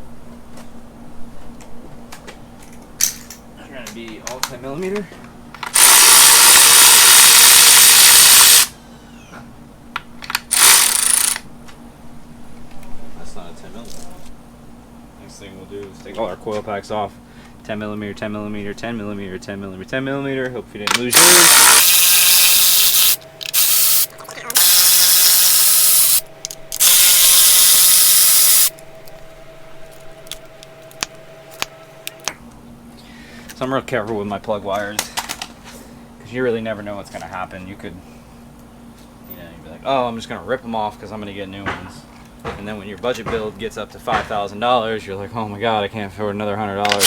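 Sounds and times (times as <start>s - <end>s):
power tool spinning bolts: 5.6s - 8.7s, 10.3s - 11.4s, 20.9s - 28.7s.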